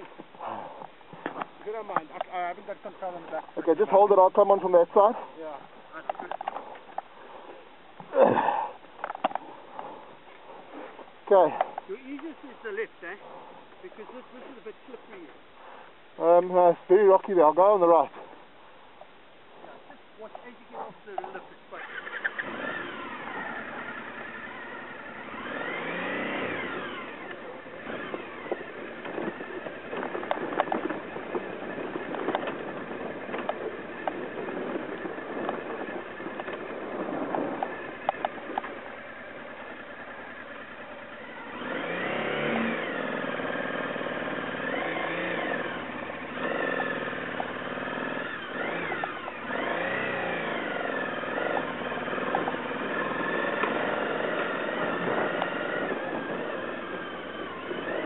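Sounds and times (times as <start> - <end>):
motorcycle engine revving: 0.0 - 58.0
wheels knocking over stones: 28.4 - 38.8.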